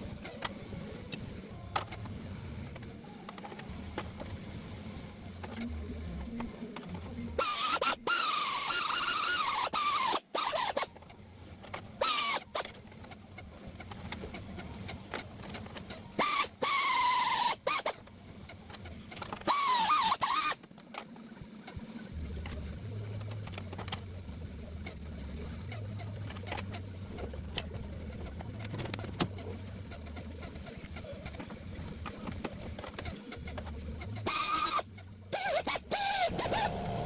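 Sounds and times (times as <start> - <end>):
power tool grinding sheet metal: 35.4 - 37.0.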